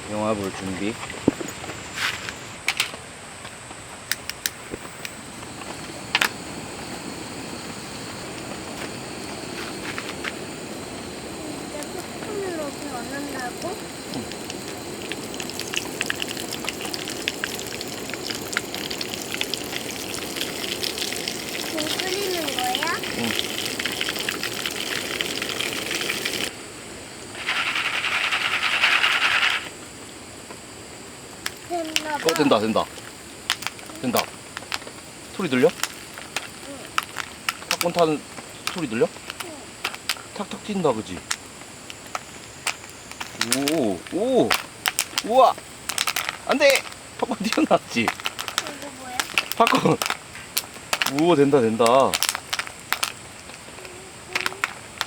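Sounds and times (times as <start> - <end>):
crackling sizzle in pot: 0.0 - 55.0
rain hissing: 0.0 - 55.0
popcorn kernels popping: 4.1 - 6.5, 9.6 - 26.5, 31.4 - 55.0
objects clicking and knocking: 31.4 - 55.0.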